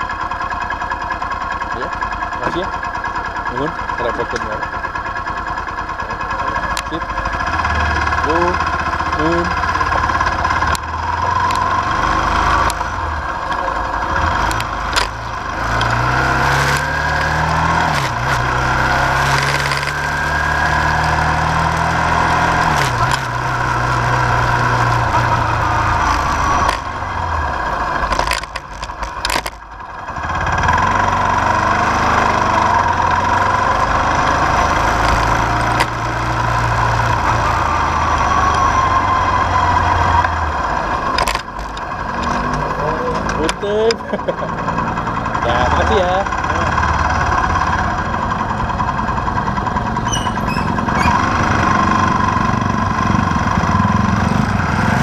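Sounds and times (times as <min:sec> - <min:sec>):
car engine running: 0:00.0 - 0:55.0.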